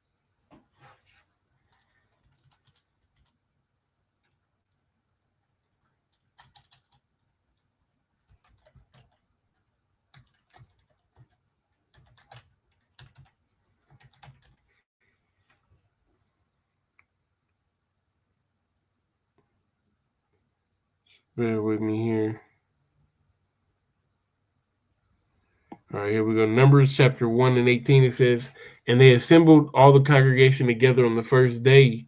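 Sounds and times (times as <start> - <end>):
faint keyboard typing: 1.6 - 3.4, 4.2 - 4.9, 5.8 - 14.8.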